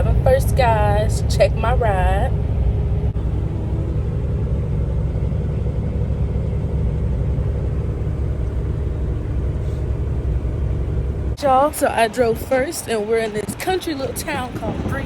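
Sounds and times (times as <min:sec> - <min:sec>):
diesel truck engine rumble: 0:00.0 - 0:15.0
road noise: 0:00.0 - 0:15.0.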